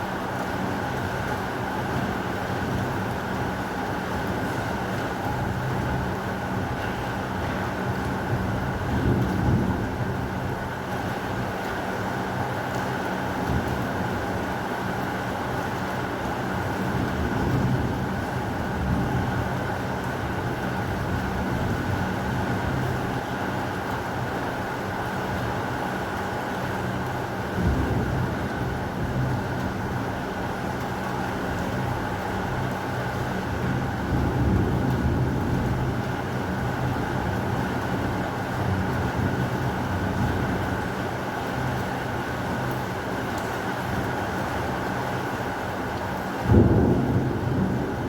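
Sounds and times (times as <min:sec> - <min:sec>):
heavy rain falling: 0:00.0 - 0:48.0
thunder rumbling: 0:46.5 - 0:48.0.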